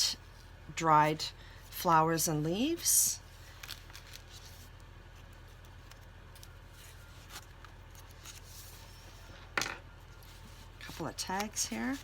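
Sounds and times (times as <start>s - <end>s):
steady low hum: 0.0s - 12.0s
paper pages rustling: 3.4s - 9.2s.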